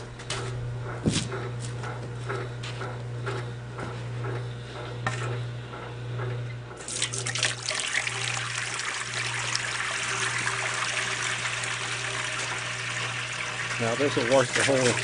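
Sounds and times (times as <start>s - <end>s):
water hose spraying into tub: 6.8s - 15.0s.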